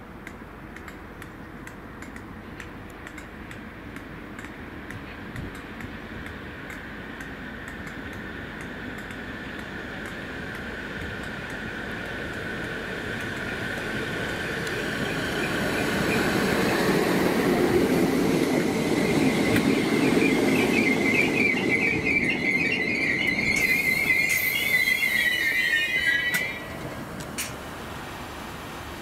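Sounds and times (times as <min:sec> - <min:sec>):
train wheels rumbling on rails: 0:00.0 - 0:29.0
high brake squeal: 0:19.0 - 0:26.8.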